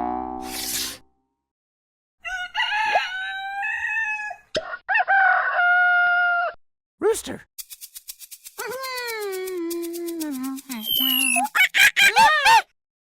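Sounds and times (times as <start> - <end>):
rooster crowing: 2.2 - 6.6.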